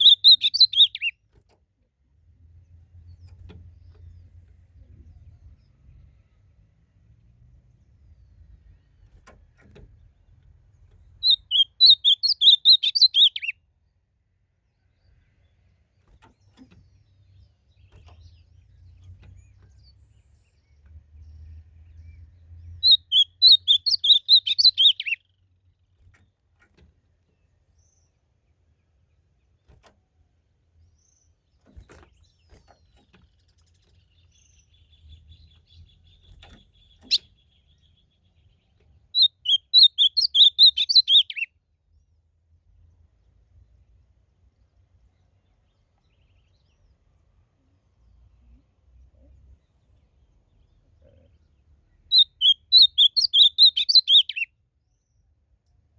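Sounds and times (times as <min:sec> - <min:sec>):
bird singing high warbled notes: 0:00.0 - 0:01.1, 0:11.2 - 0:13.5, 0:22.6 - 0:25.3, 0:39.2 - 0:41.5, 0:52.1 - 0:54.5.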